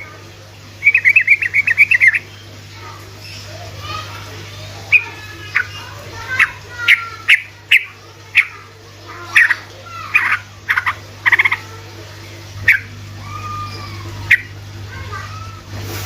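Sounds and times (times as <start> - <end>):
bird chirping and trilling: 0.8 - 11.7, 12.6 - 15.3.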